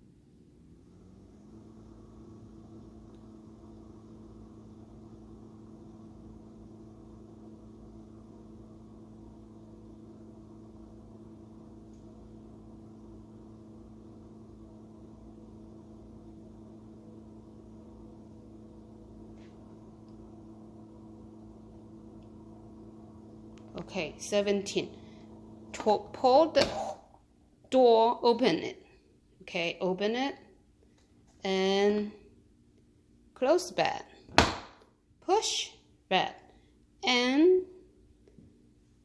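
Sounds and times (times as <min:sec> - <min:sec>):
dishwasher humming: 0:01.0 - 0:27.2.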